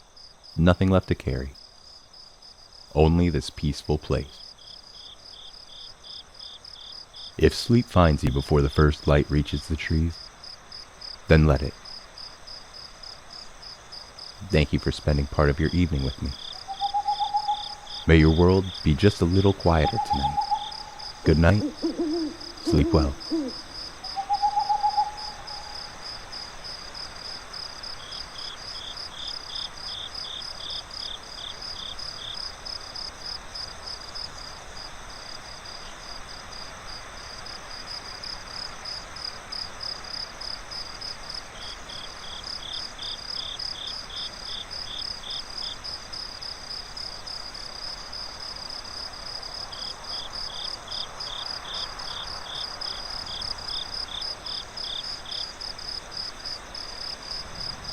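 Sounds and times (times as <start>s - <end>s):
crickets chirping: 0.0s - 57.9s
faint breeze hiss: 0.0s - 57.9s
lower-pitched insect trill: 15.2s - 57.9s
owl-like hoot: 16.6s - 18.1s, 19.8s - 25.9s.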